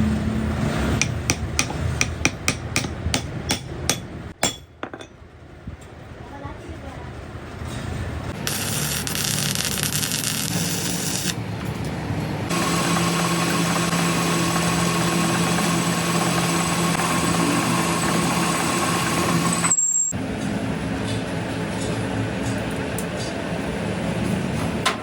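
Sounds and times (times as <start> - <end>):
workshop machinery humming: 0.0 - 5.4, 7.3 - 25.0
high whine: 8.4 - 11.4.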